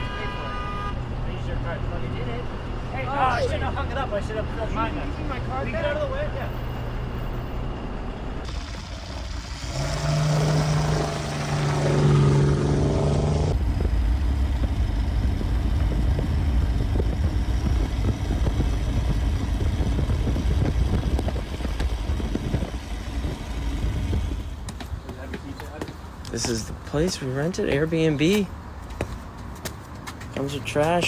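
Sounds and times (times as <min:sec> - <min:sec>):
vehicle engine and road noise: 0:00.0 - 0:31.0.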